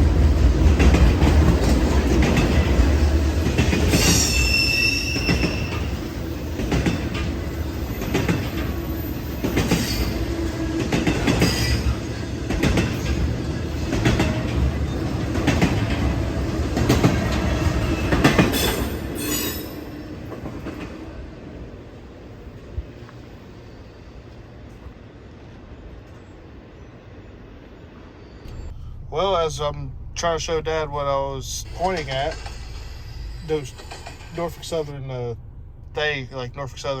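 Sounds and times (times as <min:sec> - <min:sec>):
wheels clacking over rail joints: 0:00.0 - 0:21.3, 0:30.7 - 0:35.2
freight train rumble: 0:00.0 - 0:37.0
high wheel squeals: 0:03.0 - 0:12.4, 0:17.5 - 0:20.2, 0:23.2 - 0:24.5, 0:31.5 - 0:35.2.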